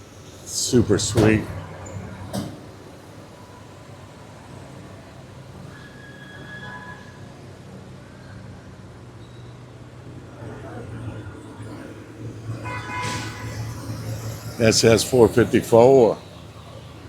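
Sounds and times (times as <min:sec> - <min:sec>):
vehicle engine idling: 0:07.4 - 0:17.0.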